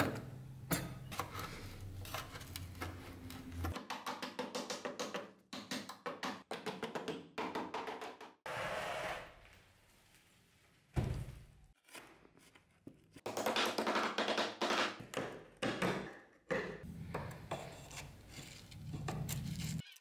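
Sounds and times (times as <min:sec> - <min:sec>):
wood scraping: 0:17.1 - 0:19.8.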